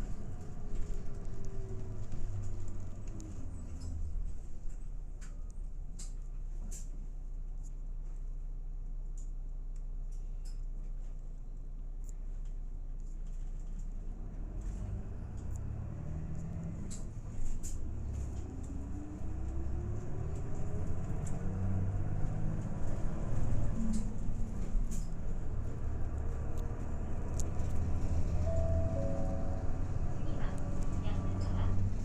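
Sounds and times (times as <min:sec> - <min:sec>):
bus engine accelerating: 0:00.0 - 0:07.0, 0:13.9 - 0:32.0
rising engine whine: 0:14.4 - 0:32.0.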